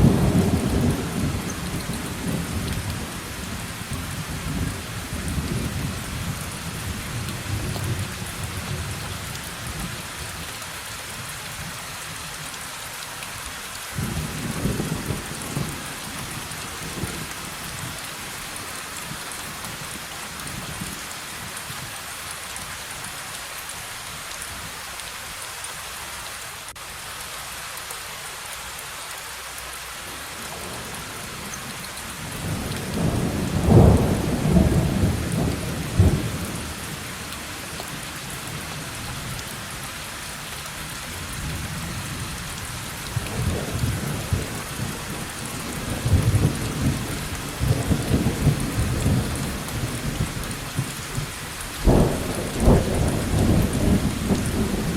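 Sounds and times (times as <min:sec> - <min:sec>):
heavy rain: 0:00.0 - 0:54.9
rolling thunder: 0:32.4 - 0:36.7, 0:43.2 - 0:54.9.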